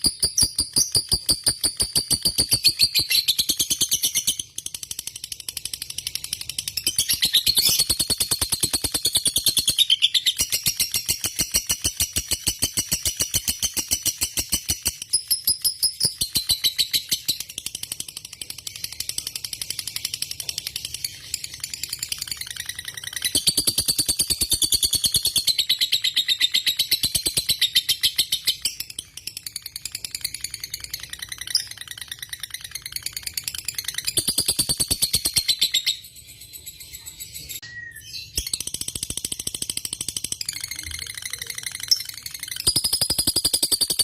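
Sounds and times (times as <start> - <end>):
lovebird chattering trill: 0.0 - 4.5, 18.7 - 36.0, 40.3 - 44.0.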